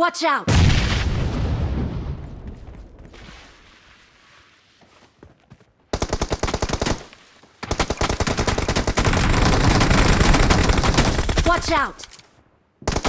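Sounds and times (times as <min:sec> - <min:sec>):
video game automatic gunfire: 0:05.9 - 0:11.7.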